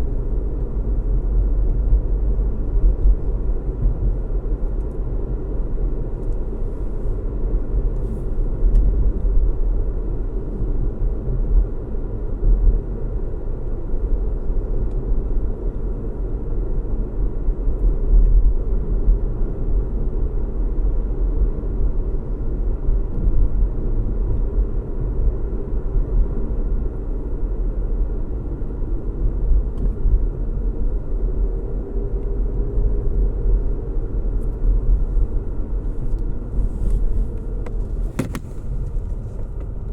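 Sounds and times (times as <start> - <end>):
car engine hum and road noise: 0.0 - 39.9.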